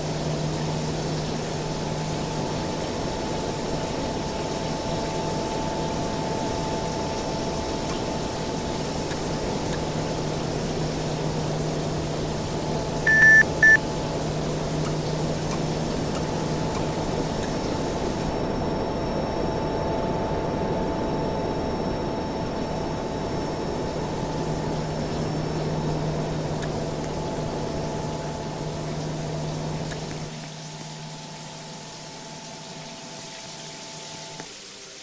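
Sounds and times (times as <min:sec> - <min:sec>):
air conditioner humming: 0:10.6 - 0:18.6
short electronic beeps: 0:13.1 - 0:13.8.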